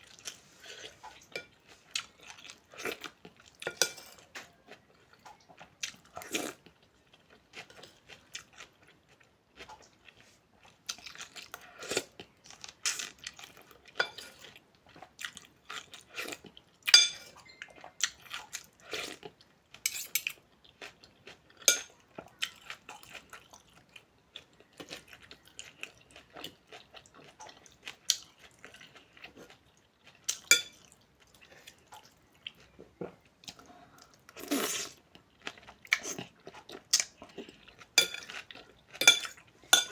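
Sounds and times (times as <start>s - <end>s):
chewing: 0.0s - 39.9s
utensils clinking against bowl: 3.7s - 4.4s, 14.0s - 14.4s, 17.0s - 17.6s, 19.9s - 20.4s, 21.7s - 21.9s, 30.5s - 30.8s, 38.0s - 38.4s, 39.0s - 39.9s.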